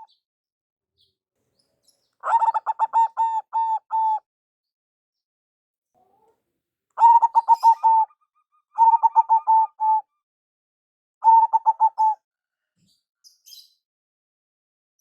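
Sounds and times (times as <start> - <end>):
dove cooing: 2.2 - 4.2, 7.0 - 8.2, 8.8 - 10.1, 11.2 - 12.2.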